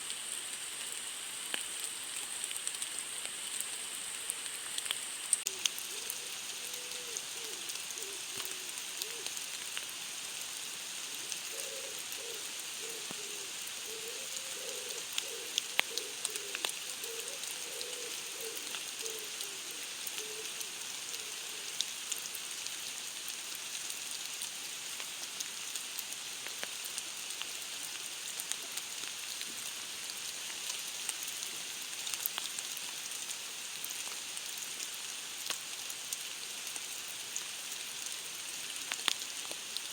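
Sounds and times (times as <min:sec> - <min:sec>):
rain hissing: 0:00.0 - 0:39.9
raindrop ticks: 0:00.9 - 0:03.7, 0:04.3 - 0:23.4, 0:32.0 - 0:33.0, 0:38.1 - 0:39.9.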